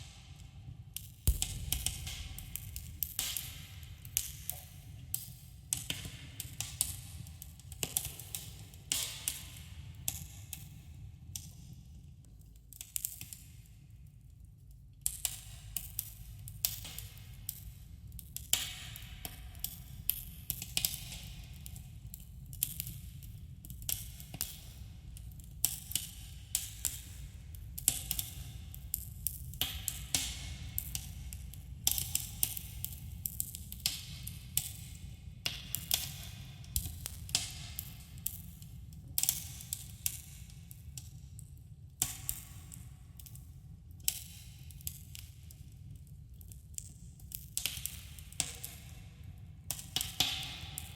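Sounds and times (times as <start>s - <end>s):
steady low rumble: 1.3s - 4.1s
campfire crackling and popping: 1.3s - 4.5s.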